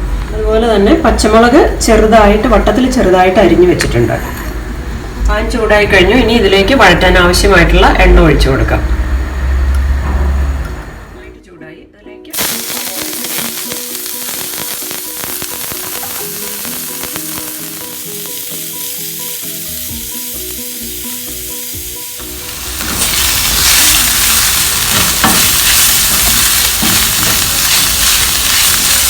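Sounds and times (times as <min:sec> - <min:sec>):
background melody: 0:11.2 - 0:29.0
oil sizzling in a pan: 0:12.4 - 0:29.0.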